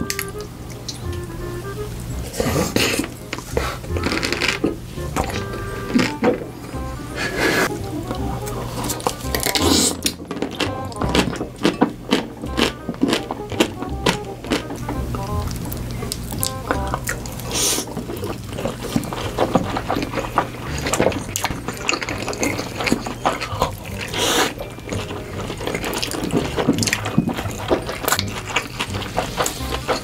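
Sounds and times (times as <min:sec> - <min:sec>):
wet chewing and mouth smacks: 0:08.1 - 0:14.8, 0:15.4 - 0:30.0.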